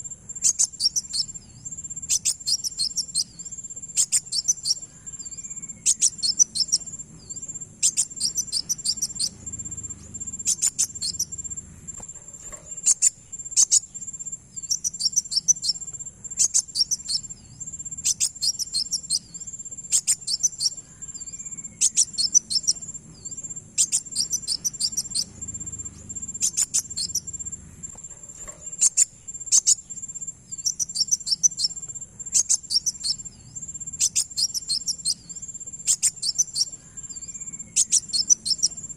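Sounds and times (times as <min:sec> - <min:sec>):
bird chirping rapidly: 0:00.0 - 0:38.9
thin high insect-like whine: 0:00.0 - 0:38.9.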